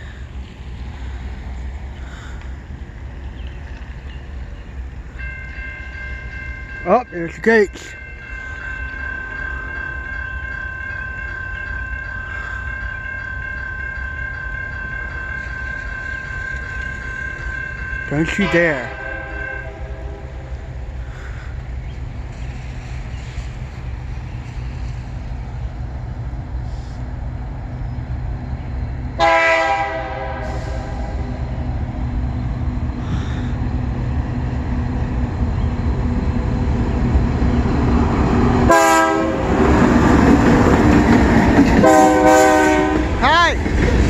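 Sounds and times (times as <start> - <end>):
locomotive rumbling: 0.0 - 44.0
train air horn blasts: 18.2 - 20.6, 29.2 - 31.4, 38.7 - 39.6, 41.8 - 43.2.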